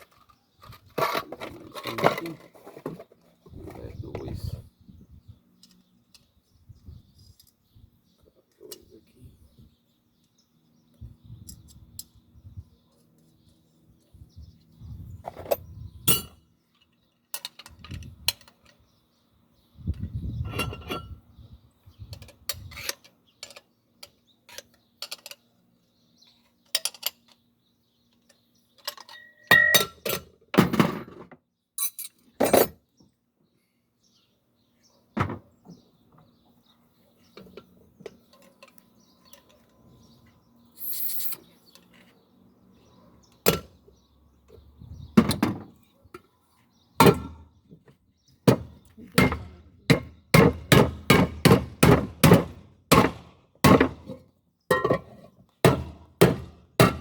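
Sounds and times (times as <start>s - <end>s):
metal clinks and knocks: 15.2s - 18.8s.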